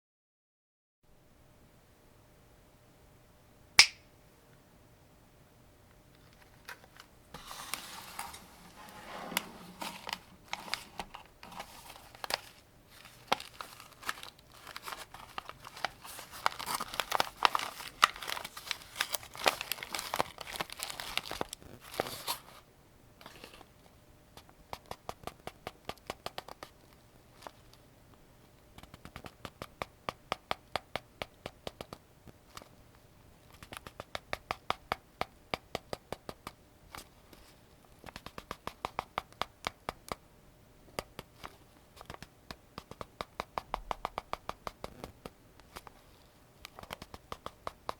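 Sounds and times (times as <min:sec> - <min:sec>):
crinkling handling noise: 0:06.1 - 0:24.0, 0:26.6 - 0:27.8.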